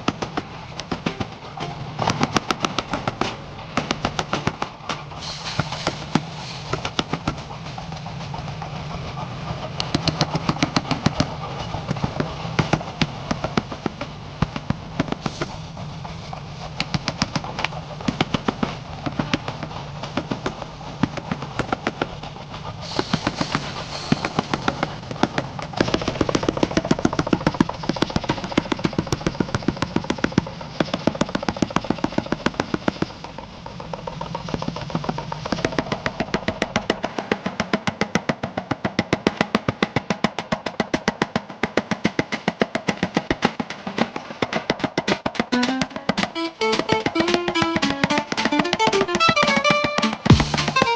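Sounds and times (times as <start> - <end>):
hammer striking hot steel: 0.0 - 7.4.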